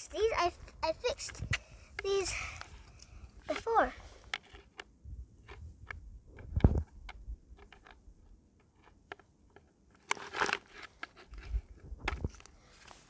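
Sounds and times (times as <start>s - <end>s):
rustling: 9.9s - 13.0s.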